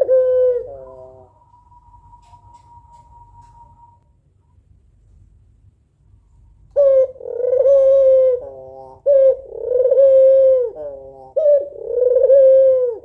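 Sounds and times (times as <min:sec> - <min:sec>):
dove cooing: 0:00.0 - 0:04.0, 0:06.8 - 0:13.0.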